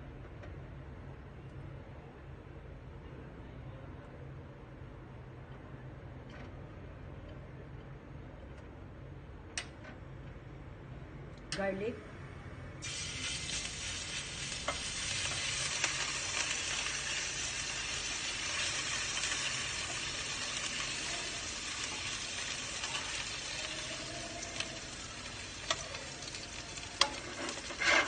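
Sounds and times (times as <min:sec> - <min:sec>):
garlic sizzling in hot oil: 0:12.8 - 0:28.0.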